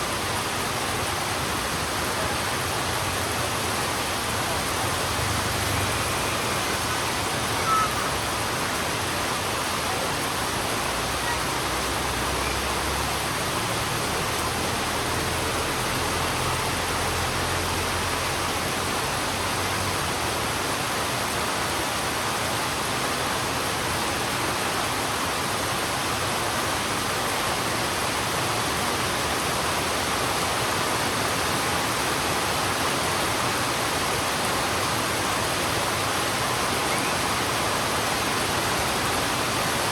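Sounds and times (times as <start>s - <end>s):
heavy rain on road: 0.0s - 39.9s.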